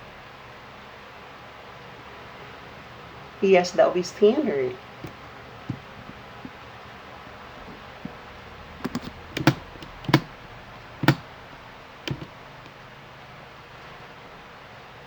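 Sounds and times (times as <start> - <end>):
computer keyboard keystrokes: 8.8 - 10.3, 11.0 - 11.3, 12.1 - 12.3.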